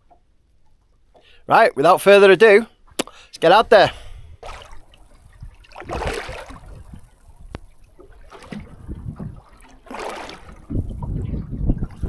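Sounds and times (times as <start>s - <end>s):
sharp click: 3.0s - 3.2s
water splashing against boat hull: 4.4s - 12.0s.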